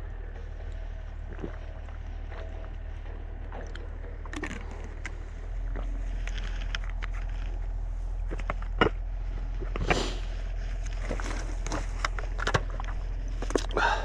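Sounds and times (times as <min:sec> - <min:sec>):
chainsaw engine idling: 0:13.2 - 0:14.0.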